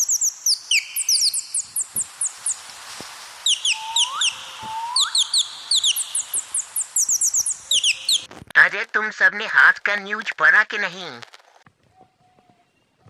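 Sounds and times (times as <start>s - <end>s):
rising whistled notes: 0.0s - 2.7s, 3.4s - 8.3s
birds chirping: 0.0s - 8.3s.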